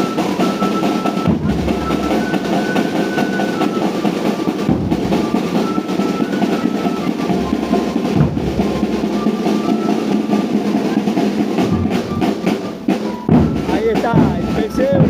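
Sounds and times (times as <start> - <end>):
drums rolling beat: 0.0 - 15.0
thin high melody: 0.0 - 15.0.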